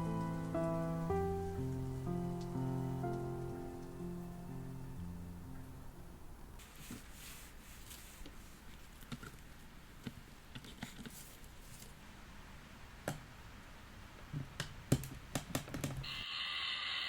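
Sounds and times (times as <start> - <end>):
steady hiss: 0.0 - 10.5, 16.0 - 17.0.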